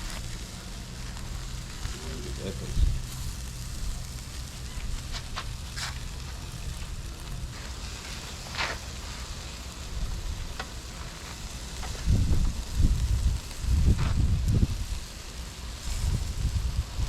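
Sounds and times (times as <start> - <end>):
wind rumble on microphone: 0.0 - 7.6, 9.9 - 10.6, 11.2 - 17.0
steaks sizzling on a grill: 0.0 - 17.0.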